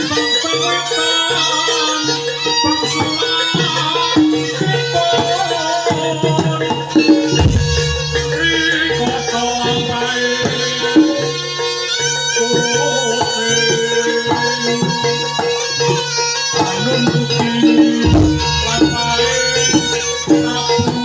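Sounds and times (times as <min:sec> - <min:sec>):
drums and percussion: 0:00.0 - 0:21.0
reedy wind instrument melody: 0:00.0 - 0:21.0.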